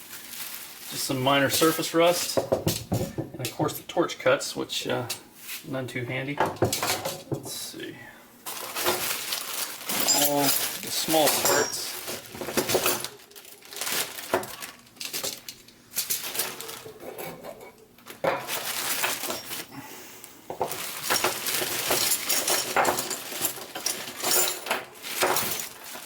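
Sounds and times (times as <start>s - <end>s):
small steel parts clinking: 8.8s - 13.6s, 15.0s - 16.6s, 18.5s - 19.7s, 20.9s - 26.0s.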